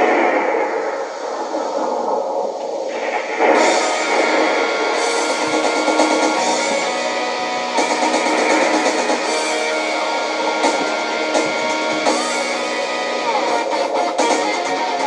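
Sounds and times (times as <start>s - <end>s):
hard rock backing track with guitar: 3.6s - 15.0s.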